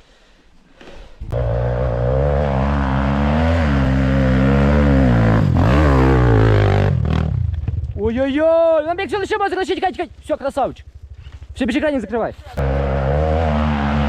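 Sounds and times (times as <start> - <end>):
motorcycle engine revving: 1.3 - 8.0, 10.8 - 14.0.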